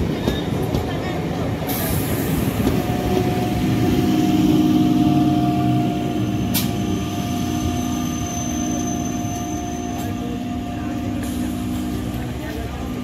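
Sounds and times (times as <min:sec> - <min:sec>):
train coaches rumbling: 0:00.0 - 0:13.0.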